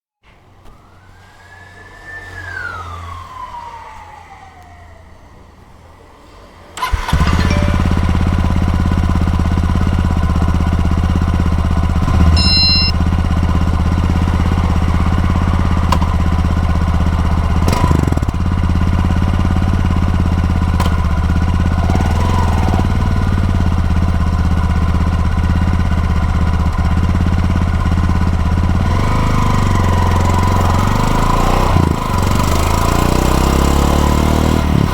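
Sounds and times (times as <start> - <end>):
falling whine: 0.3 - 9.3, 10.5 - 15.8
motorcycle engine idling: 6.8 - 22.0, 22.9 - 28.9
short high beep: 7.1 - 8.6, 12.2 - 13.0.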